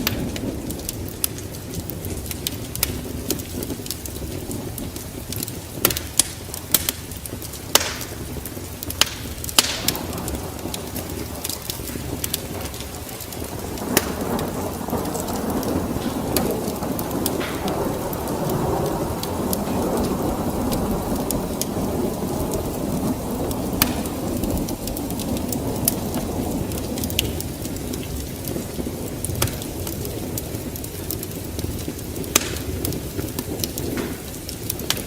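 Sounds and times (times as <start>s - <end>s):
low rumble of thunder: 0.0s - 35.0s
steady rain: 0.0s - 35.0s
sharp pops: 7.7s - 15.2s, 23.8s - 24.4s, 32.3s - 32.8s.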